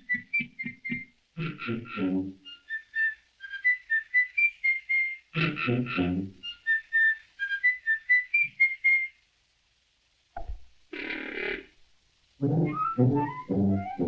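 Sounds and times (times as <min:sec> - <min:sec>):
whistled cartoon tune: 0:00.0 - 0:01.1, 0:02.4 - 0:05.3, 0:05.9 - 0:09.2, 0:12.5 - 0:14.0
low full notes: 0:12.4 - 0:14.0.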